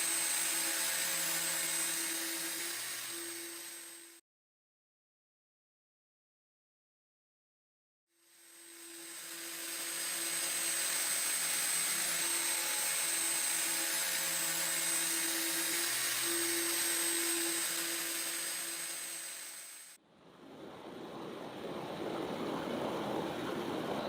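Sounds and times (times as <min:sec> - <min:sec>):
power tool motor whining: 0:00.0 - 0:04.2, 0:08.4 - 0:20.0.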